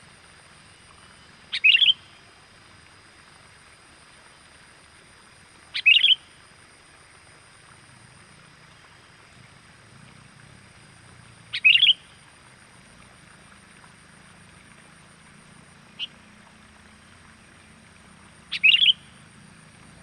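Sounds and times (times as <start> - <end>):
bird chattering calls: 11.6 - 12.0, 18.5 - 19.0.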